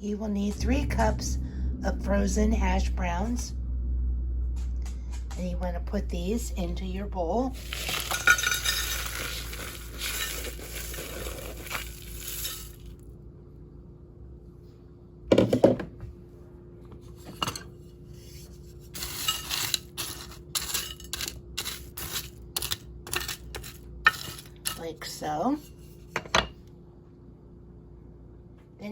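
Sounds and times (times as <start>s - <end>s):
hash browns pouring from plastic bag: 7.6s - 13.0s.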